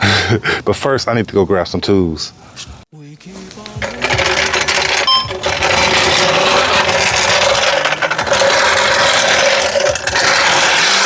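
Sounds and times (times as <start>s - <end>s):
metal hand tools clattering: 3.7s - 11.0s.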